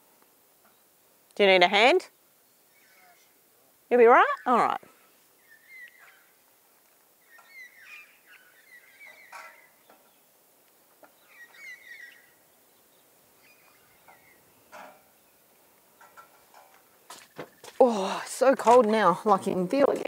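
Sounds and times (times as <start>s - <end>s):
bird chirping and warbling: 2.5s - 3.4s, 4.0s - 4.8s, 5.4s - 6.4s, 7.2s - 10.3s, 11.1s - 15.5s.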